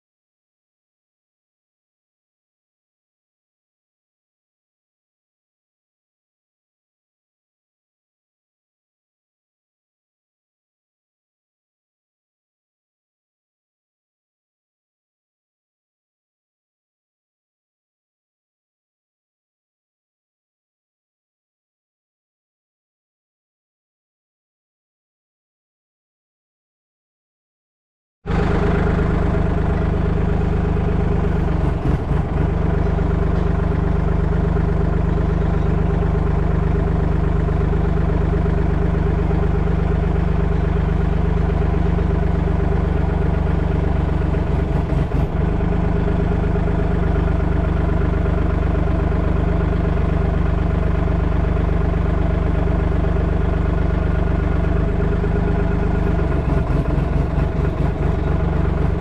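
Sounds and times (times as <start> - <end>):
diesel engine running: 28.3 - 59.0
low engine flutters: 28.3 - 59.0.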